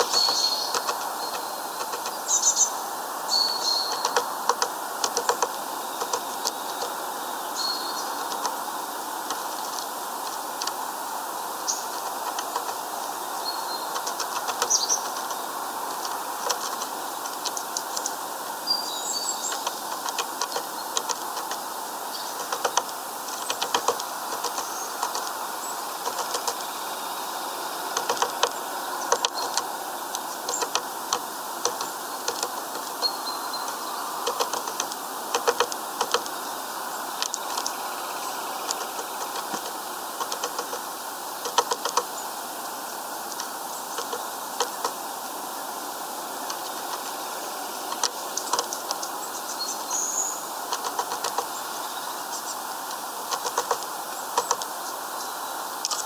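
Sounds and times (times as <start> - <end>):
beak tapping on seeds: 0.0 - 2.2, 3.5 - 7.0, 8.2 - 8.6, 11.7 - 12.8, 13.9 - 15.4, 16.0 - 18.2, 19.4 - 26.7, 27.9 - 36.4, 37.2 - 37.8, 38.6 - 42.1, 43.3 - 45.0, 47.9 - 49.1, 50.7 - 51.5, 53.3 - 54.7.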